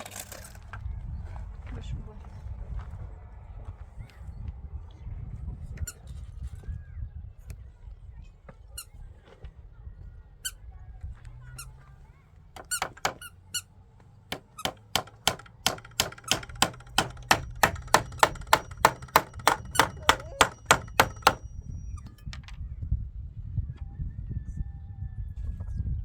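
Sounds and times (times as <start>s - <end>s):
hammer blows with metallic ring: 14.3s - 22.0s.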